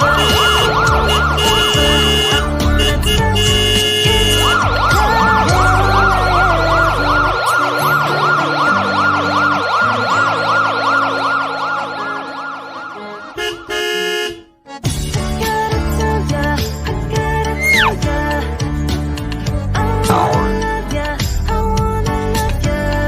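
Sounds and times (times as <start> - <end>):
electronic siren wailing: 0.0 - 2.3, 4.4 - 13.3, 17.6 - 18.0, 20.1 - 20.6
background music: 0.0 - 23.0.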